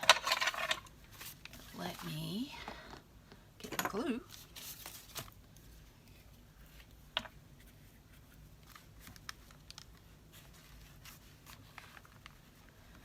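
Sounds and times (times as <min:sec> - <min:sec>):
low room hum: 0:00.0 - 0:13.0
paper handling: 0:04.3 - 0:05.4, 0:07.6 - 0:13.0.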